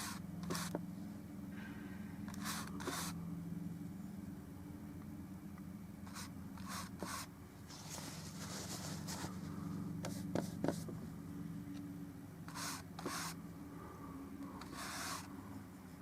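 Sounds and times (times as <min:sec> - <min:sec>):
paint brush scratching and dabbing: 0:00.0 - 0:00.8, 0:02.3 - 0:03.2, 0:06.1 - 0:10.9, 0:12.5 - 0:13.4, 0:14.6 - 0:15.3
steady low hum: 0:00.0 - 0:16.0.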